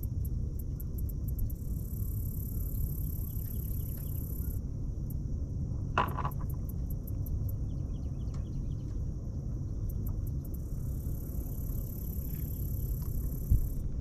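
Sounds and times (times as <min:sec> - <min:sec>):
insects chirping: 0:00.0 - 0:14.0
steady low rumble: 0:00.0 - 0:14.0.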